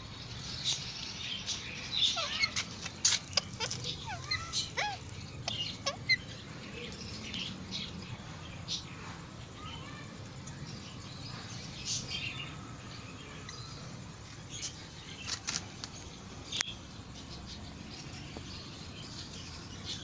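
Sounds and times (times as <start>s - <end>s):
parakeet chirping: 0.4s - 8.0s.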